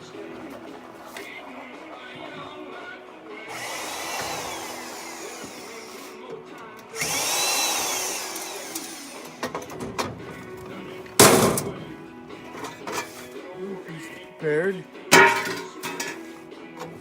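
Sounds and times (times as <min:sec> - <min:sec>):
power drill winding up and down: 0:03.5 - 0:06.2, 0:06.9 - 0:09.7.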